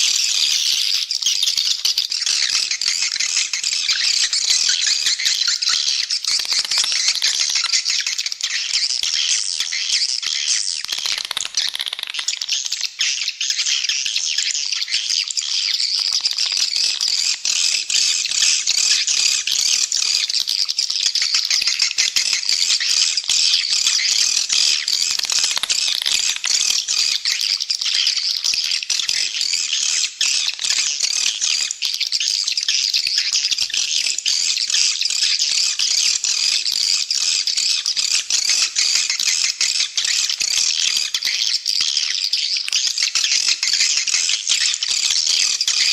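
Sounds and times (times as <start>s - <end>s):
swiftlet chirps and twitters: 0.0s - 12.5s.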